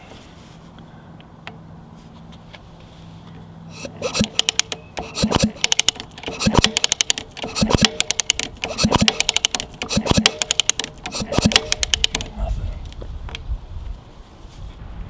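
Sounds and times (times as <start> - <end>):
sharp clicks of kickstarter: 3.7 - 13.4.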